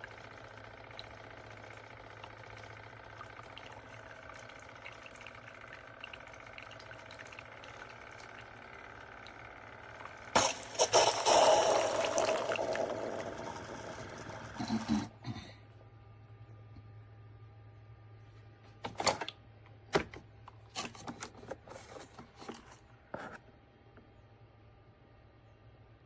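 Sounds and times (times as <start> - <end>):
faint liquid sounds: 0.0 - 15.1
coffee maker humming: 0.0 - 18.5, 20.0 - 23.5
loud hissing burst: 10.4 - 13.6.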